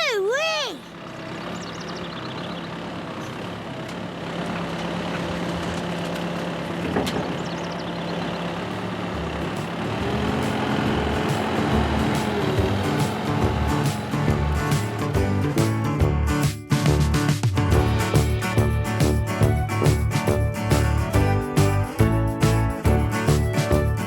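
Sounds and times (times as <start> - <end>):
heavy farm machinery engine running: 0.9 - 15.9, 17.7 - 24.0
music: 9.4 - 24.0.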